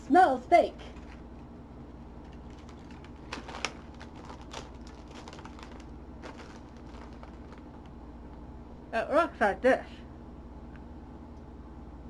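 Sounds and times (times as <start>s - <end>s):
steady low hum: 0.0s - 12.0s
plastic snack packaging crackling: 2.2s - 8.0s.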